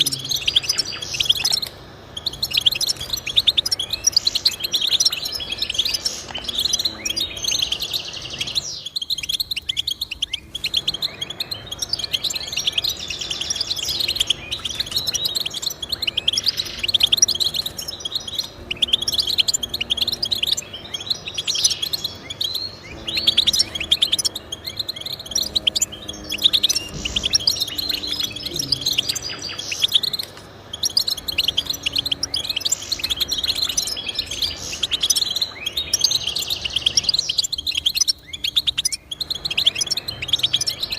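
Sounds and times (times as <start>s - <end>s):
finch twittering song: 0.0s - 40.9s.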